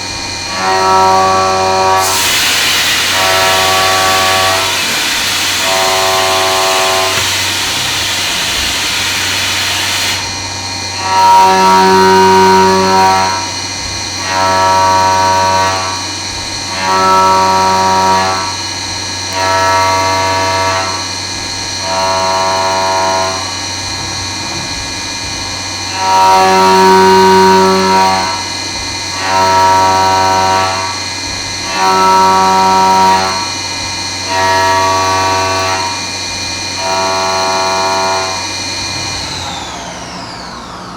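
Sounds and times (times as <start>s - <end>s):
spindle whine: 0.0s - 33.6s
end mill cutting hum: 0.0s - 40.9s
hissing rush: 2.0s - 10.3s.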